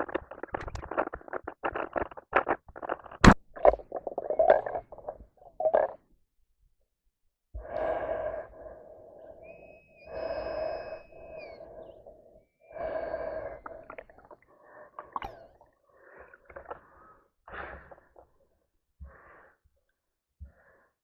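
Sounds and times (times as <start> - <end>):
small clicks: 0.0 - 5.2
person breathing heavily: 7.6 - 18.2, 19.0 - 19.6.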